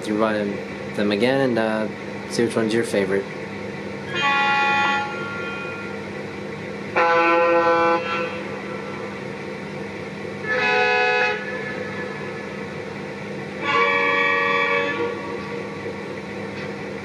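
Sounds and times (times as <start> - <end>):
steady engine hum: 0.0 - 17.0
air horn blasts: 4.1 - 6.0, 6.9 - 8.9, 10.4 - 12.4, 13.6 - 15.6.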